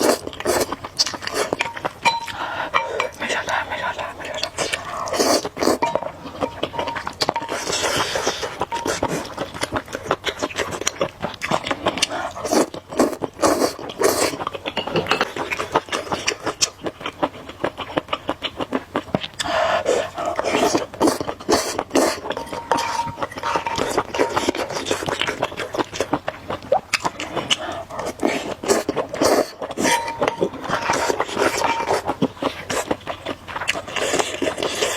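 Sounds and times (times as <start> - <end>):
person slurping noodles: 0.0 - 1.6, 4.3 - 5.8, 12.0 - 14.4, 19.4 - 25.4, 27.4 - 32.9.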